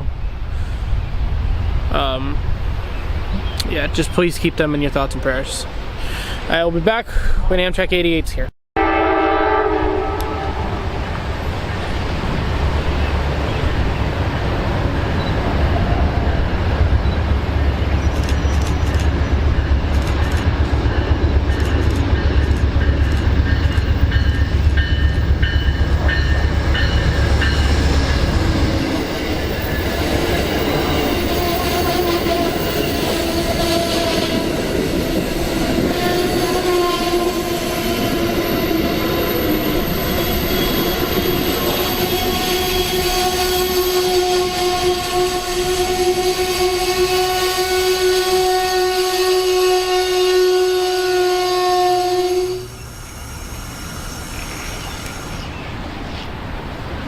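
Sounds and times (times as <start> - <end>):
train low rumble: 8.8 - 57.0
train wheel clatter: 18.0 - 28.4.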